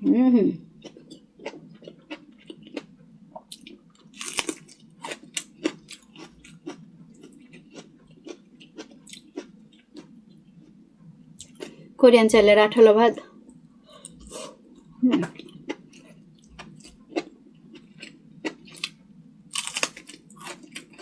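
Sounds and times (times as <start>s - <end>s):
person chewing: 0.8s - 10.8s, 11.4s - 11.9s, 14.0s - 21.0s
crunchy bite: 4.2s - 6.8s, 18.0s - 21.0s.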